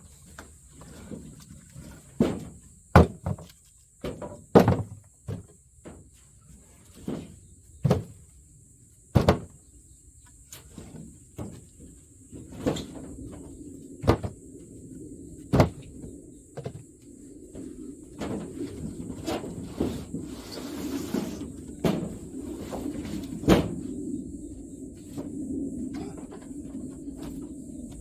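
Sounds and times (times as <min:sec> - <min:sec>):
firewood knocking and cracking: 0:02.2 - 0:05.6, 0:09.1 - 0:09.6.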